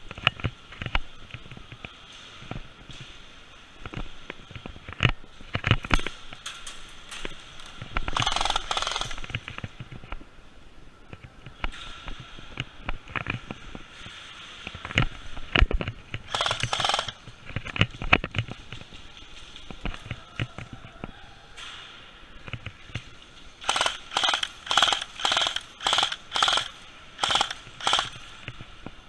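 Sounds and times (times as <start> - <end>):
short rushing bursts: 16.3 - 17.2, 23.6 - 28.3.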